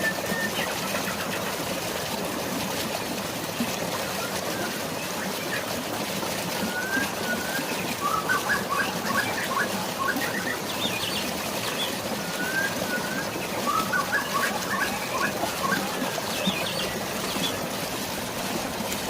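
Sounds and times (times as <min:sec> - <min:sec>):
flowing water: 0:00.0 - 0:19.0
rain: 0:00.0 - 0:19.0
songbird singing: 0:06.8 - 0:17.6.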